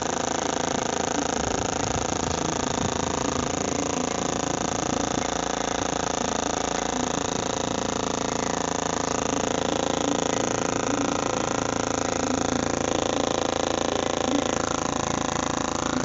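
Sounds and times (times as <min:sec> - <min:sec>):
washing machine spinning: 0:00.0 - 0:16.0.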